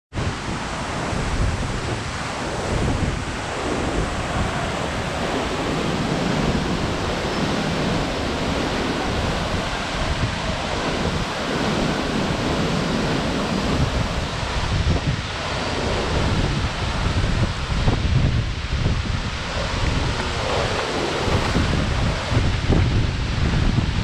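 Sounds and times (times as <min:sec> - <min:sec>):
wind buffeting microphone: 0:00.1 - 0:24.0.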